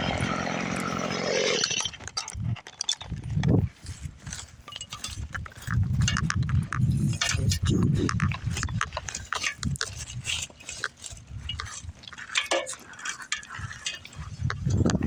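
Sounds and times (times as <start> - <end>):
chainsaw running: 0.0 - 4.6.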